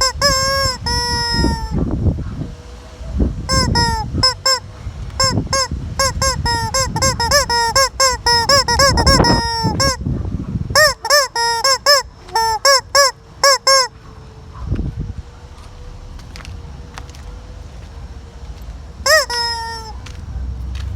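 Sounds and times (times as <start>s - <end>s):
chicken squawking: 0.0s - 1.8s, 3.5s - 10.0s, 10.8s - 14.0s, 19.0s - 20.1s.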